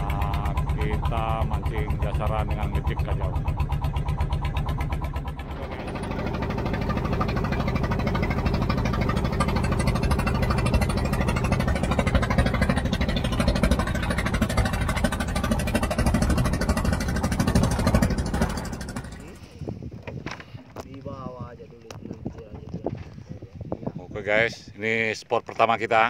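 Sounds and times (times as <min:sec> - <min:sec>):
rushing water noise: 0:00.0 - 0:19.6
boat engine running: 0:00.0 - 0:25.2.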